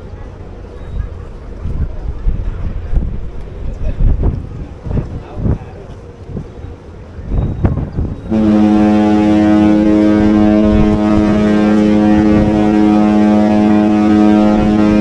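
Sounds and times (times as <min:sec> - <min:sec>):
ship horn long blast: 0:08.3 - 0:15.0.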